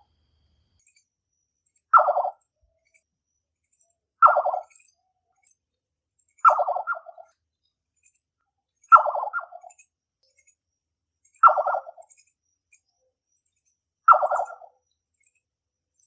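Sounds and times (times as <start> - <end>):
nightjar calling: 0.8 - 5.6, 6.2 - 16.0.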